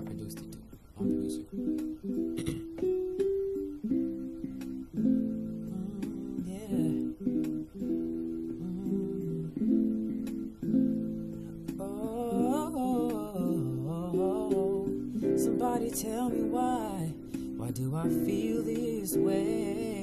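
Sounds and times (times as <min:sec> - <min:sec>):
acoustic guitar chords: 0:00.0 - 0:20.0
person singing without words: 0:05.4 - 0:10.8, 0:11.6 - 0:20.0.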